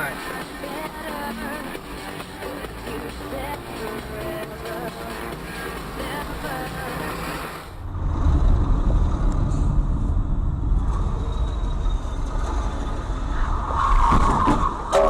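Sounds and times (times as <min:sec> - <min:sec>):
music: 0:00.0 - 0:07.7
vehicle engine and road noise: 0:00.0 - 0:14.9.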